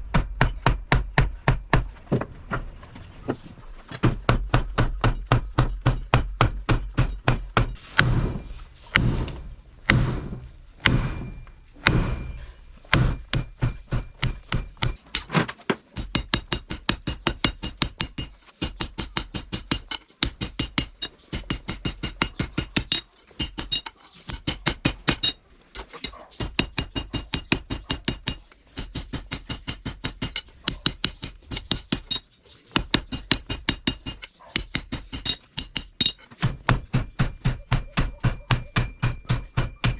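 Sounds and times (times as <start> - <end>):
hammer striking steel on anvil: 4.6 - 15.3, 32.8 - 39.9.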